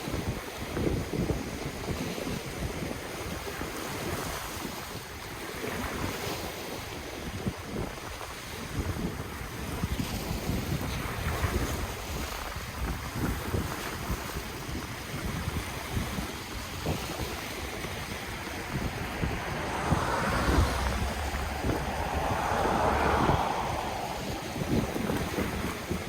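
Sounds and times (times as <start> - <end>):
wind buffeting microphone: 8.7 - 26.0
ocean waves washing ashore: 14.8 - 26.0.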